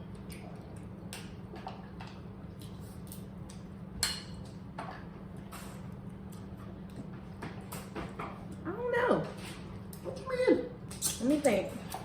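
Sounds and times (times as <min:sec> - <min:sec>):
clicks and wet smacks of eating: 0:00.0 - 0:04.6.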